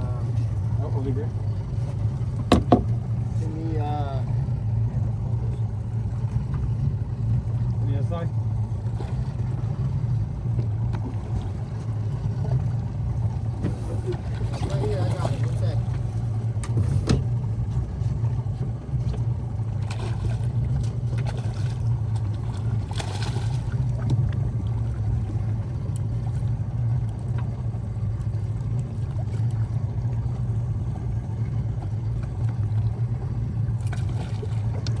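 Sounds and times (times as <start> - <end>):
boat engine droning: 0.0 - 35.0
water noise: 0.0 - 35.0
wind: 0.0 - 35.0.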